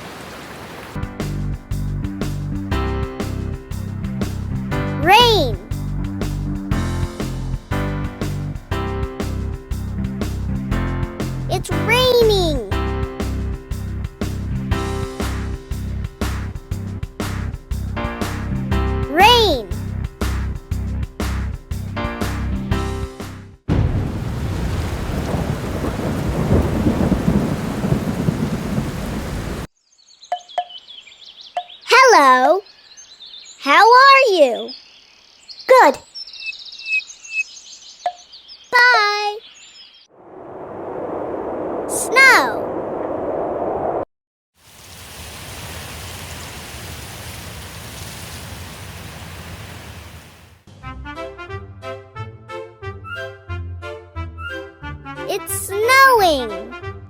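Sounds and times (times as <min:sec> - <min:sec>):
heavy rain: 0:00.0 - 0:01.0, 0:23.7 - 0:29.7, 0:44.6 - 0:50.6
thunder rumbling: 0:23.7 - 0:29.7, 0:40.1 - 0:44.0
low rumble: 0:40.1 - 0:41.9, 0:42.6 - 0:44.1
steady rushing noise: 0:40.1 - 0:44.0.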